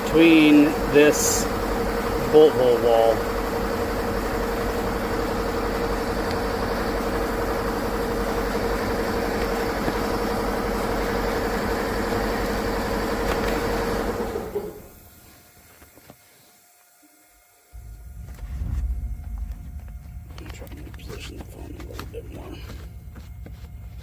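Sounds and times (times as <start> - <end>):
power tool motor whining: 0.0 - 16.1.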